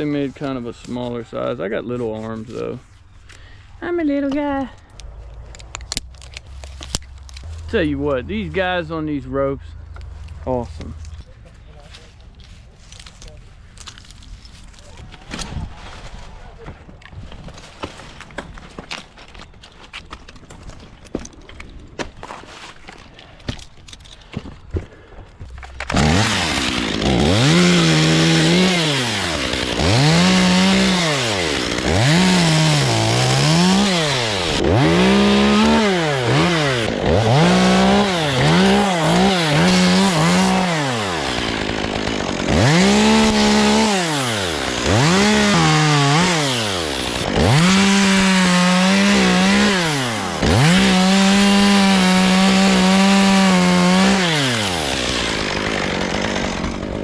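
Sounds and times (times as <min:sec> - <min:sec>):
chainsaw cutting wood: 0:25.6 - 0:57.0.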